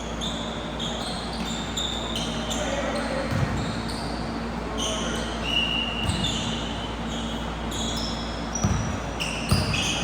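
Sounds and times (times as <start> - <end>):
shoes squeaking on gym floor: 0.1 - 10.0
basketball bounce: 3.3 - 3.7, 8.6 - 9.9.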